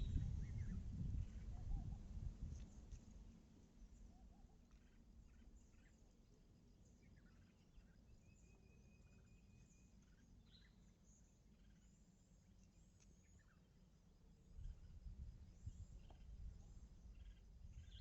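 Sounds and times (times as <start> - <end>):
low rumble: 0.0 - 2.6
bird calls and chirps: 0.0 - 18.0.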